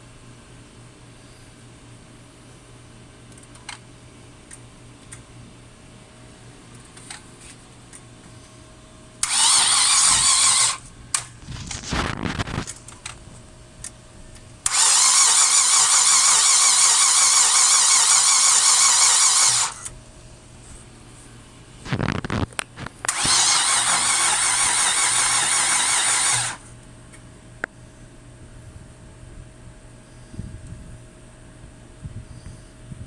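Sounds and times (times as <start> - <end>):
faint steady hum: 0.0 - 33.0
starter cranking engine: 9.2 - 13.2, 14.6 - 19.9, 21.9 - 26.7
uneven engine rumbling: 9.2 - 26.7.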